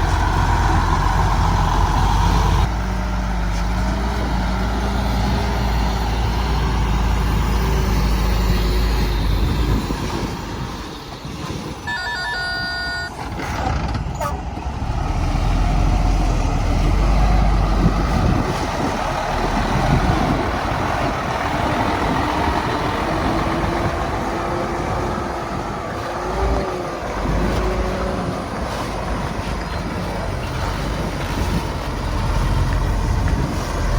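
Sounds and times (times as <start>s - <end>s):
truck diesel engine under load: 0.0s - 33.9s
reversing alarm beeps: 11.9s - 13.2s.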